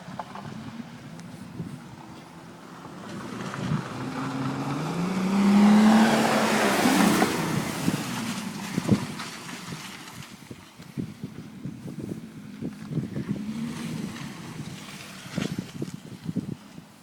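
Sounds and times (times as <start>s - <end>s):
car engine accelerating hard: 2.5s - 9.6s, 13.0s - 15.8s.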